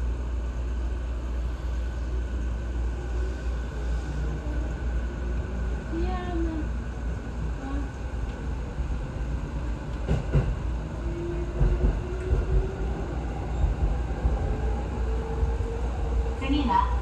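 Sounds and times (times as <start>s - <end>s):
train rumbling: 0.0s - 17.0s
train wheels knocking: 9.8s - 10.8s, 11.4s - 13.0s.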